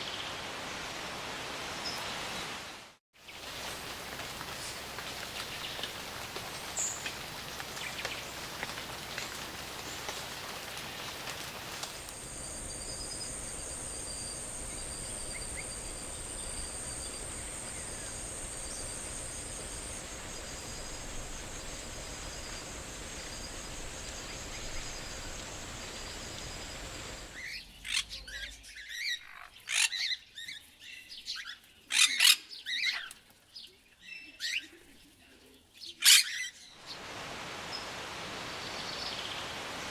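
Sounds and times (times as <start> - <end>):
steady hiss: 0.4 - 27.6, 36.8 - 39.9.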